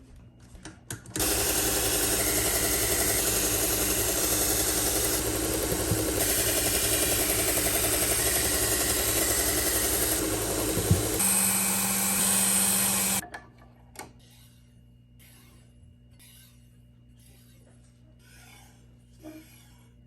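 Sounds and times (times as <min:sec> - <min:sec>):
knife-sharpening machine grinding: 0:01.2 - 0:13.2.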